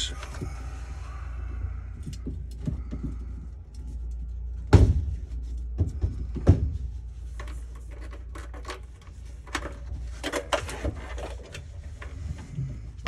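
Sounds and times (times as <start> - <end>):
steady low hum: 0.0 - 13.0
loud knocks: 4.7 - 6.8.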